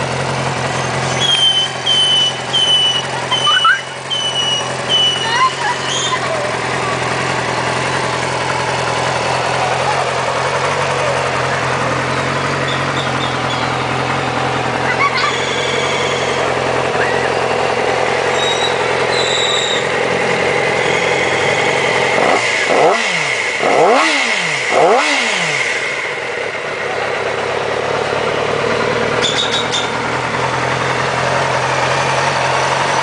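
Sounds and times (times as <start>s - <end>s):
motorcycle engine idling and revving: 0.0s - 33.0s.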